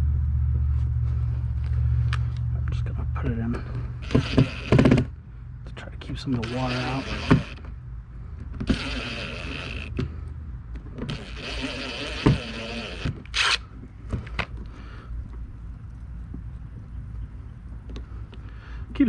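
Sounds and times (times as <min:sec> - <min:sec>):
scraping and rubbing: 0:06.3 - 0:07.7, 0:08.6 - 0:10.1, 0:11.0 - 0:14.8.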